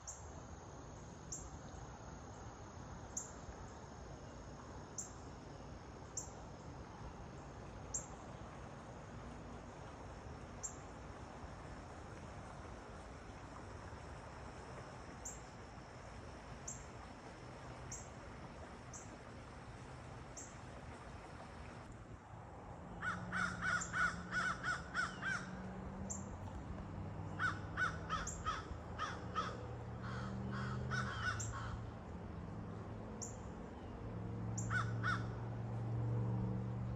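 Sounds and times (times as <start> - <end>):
outdoor hiss: 0.0 - 22.0
crow cawing: 23.0 - 25.6, 27.3 - 31.8, 34.7 - 35.3.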